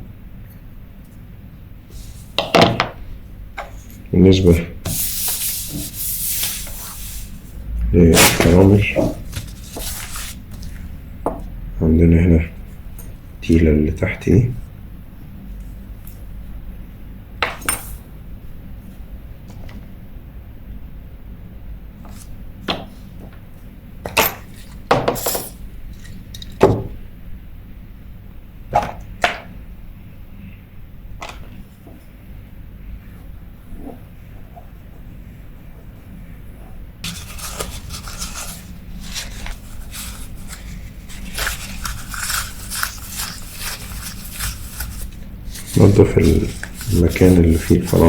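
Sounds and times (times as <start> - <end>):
scratchy scraping of reel spool: 37.0 - 48.0.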